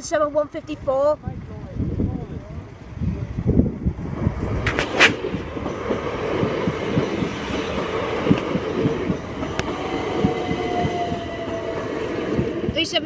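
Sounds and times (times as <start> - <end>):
train rumbling past: 0.3 - 13.0
wheels clattering over rail joints: 4.6 - 13.0.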